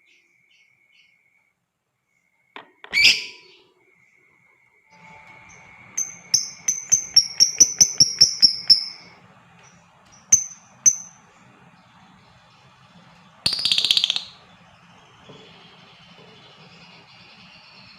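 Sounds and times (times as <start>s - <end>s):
lovebird chirping: 2.9s - 4.2s, 5.0s - 17.9s.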